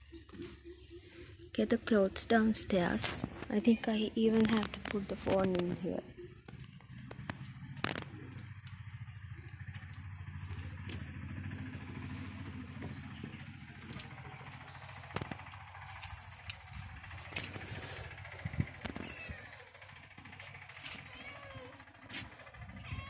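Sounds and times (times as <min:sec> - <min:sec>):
birds chirping: 0:00.0 - 0:23.0
low steady rumble: 0:00.0 - 0:23.0.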